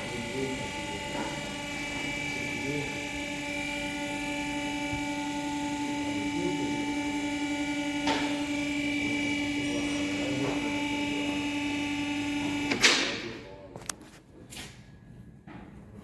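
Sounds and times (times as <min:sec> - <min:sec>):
steady electric hum: 0:00.0 - 0:15.3.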